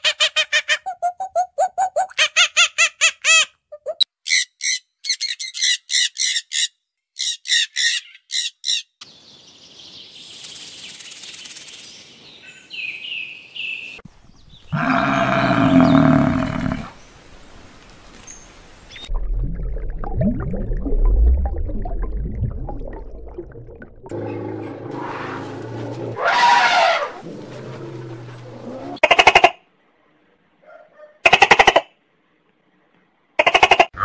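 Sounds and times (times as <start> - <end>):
loud rough animal call: 14.7 - 17.0, 24.1 - 29.1.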